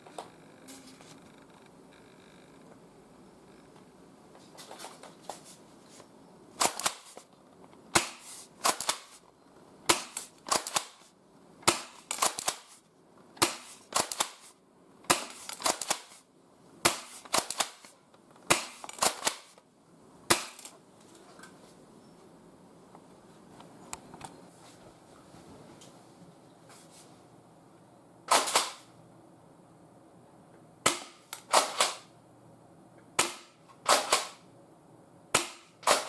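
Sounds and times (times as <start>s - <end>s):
airsoft shotgun pumping and firing: 6.6s - 7.3s, 7.9s - 9.2s, 9.9s - 12.8s, 13.4s - 16.2s, 16.8s - 19.6s, 20.3s - 20.7s, 28.3s - 28.9s, 30.8s - 32.1s, 33.2s - 34.4s, 35.3s - 36.0s.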